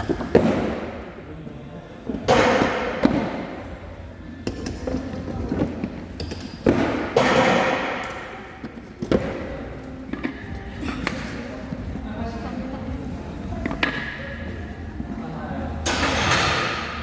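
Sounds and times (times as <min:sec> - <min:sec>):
gym equipment thudding and clanking: 0:04.5 - 0:08.4, 0:15.8 - 0:17.0.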